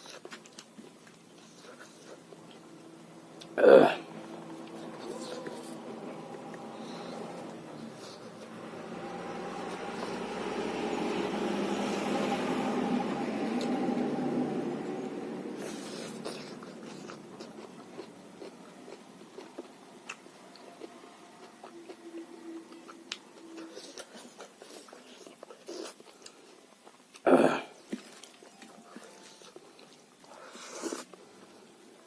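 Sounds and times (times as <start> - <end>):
close chewing and biting: 0.0 - 12.0, 15.6 - 31.5
low rushing noise: 4.0 - 16.9.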